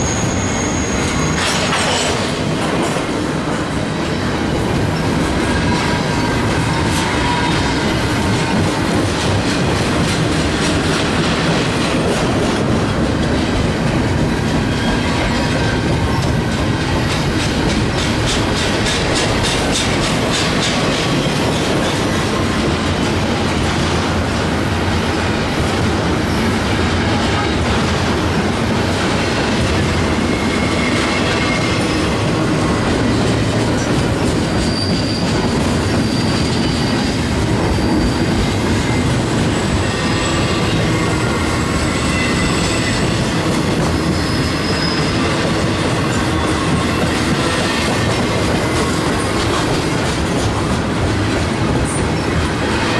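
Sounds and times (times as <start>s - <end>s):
faint high wheel squeal: 0.0s - 2.1s, 28.8s - 50.0s
train wheels rumbling on rails: 0.0s - 52.9s
clickety-clack over rail joints: 0.9s - 52.9s.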